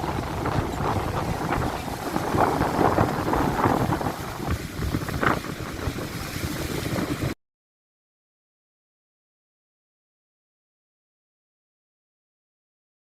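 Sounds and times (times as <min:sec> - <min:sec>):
strong wind buffeting microphone: 0:00.0 - 0:07.4.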